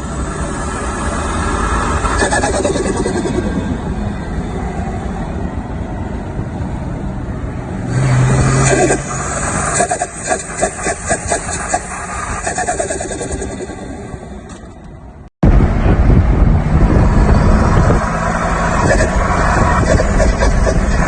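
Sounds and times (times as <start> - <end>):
engine surging: 0.0 - 21.0
turbo flutter: 1.9 - 4.0, 8.0 - 14.9, 18.8 - 21.0.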